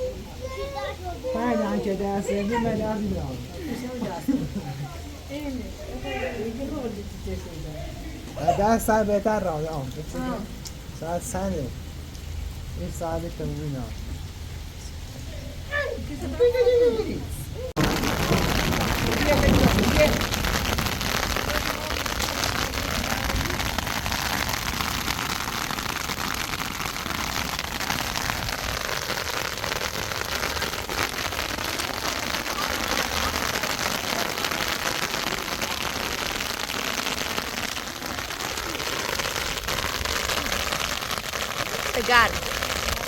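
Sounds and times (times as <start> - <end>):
rain falling: 0.0 - 43.0.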